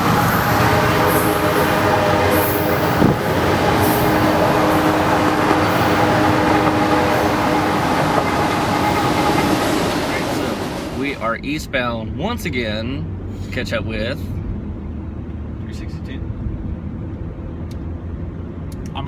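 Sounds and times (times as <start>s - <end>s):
freight train passing: 0.0s - 11.9s.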